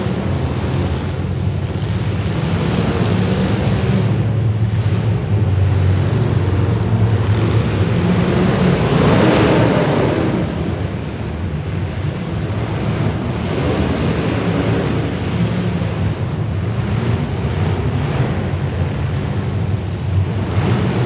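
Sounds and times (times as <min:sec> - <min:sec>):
car engines revving: 0:00.0 - 0:21.0.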